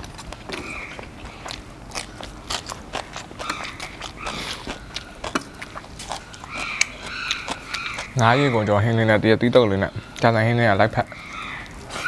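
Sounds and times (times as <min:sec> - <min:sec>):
person chewing crunchy food: 0:00.0 - 0:08.8.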